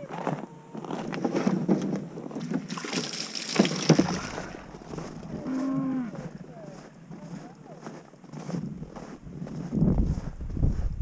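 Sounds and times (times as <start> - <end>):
footsteps on slushy ground: 0.1 - 11.0
wind gust on microphone: 8.8 - 11.0.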